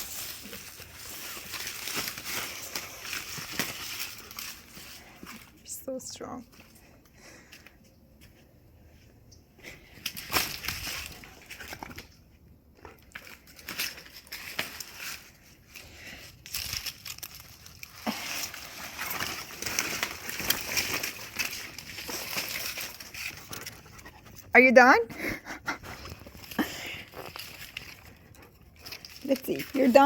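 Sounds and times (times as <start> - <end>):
dog chewing dry leaf: 0.0 - 5.5, 12.8 - 24.3, 26.0 - 30.0.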